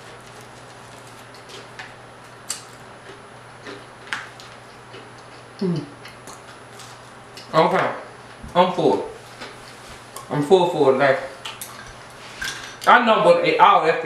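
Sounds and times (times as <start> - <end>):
chewing with crunching clicks: 0.2 - 7.5
person humming mm: 5.6 - 6.0.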